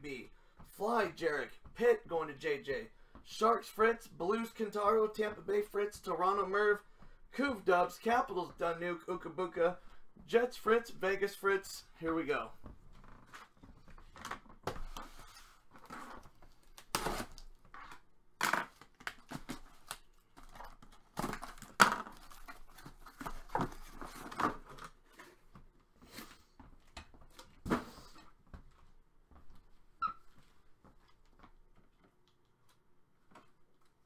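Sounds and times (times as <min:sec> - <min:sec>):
cardboard tearing: 0:16.6 - 0:17.5.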